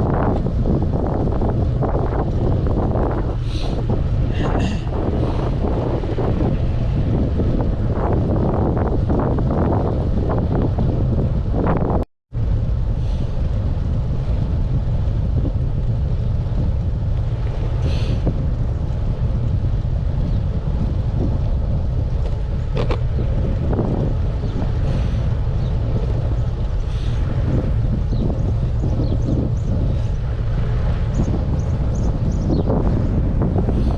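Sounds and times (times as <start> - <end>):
wind buffeting microphone: 0.0 - 33.9.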